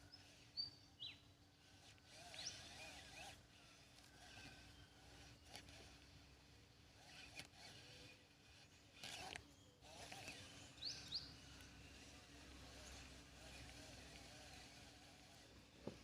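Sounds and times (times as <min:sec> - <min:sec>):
bird calls: 0:10.5 - 0:11.6.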